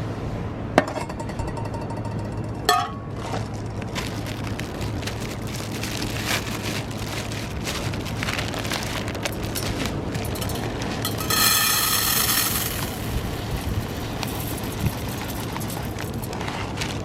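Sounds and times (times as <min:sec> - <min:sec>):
wood fire crackling: 0:12.0 - 0:17.0.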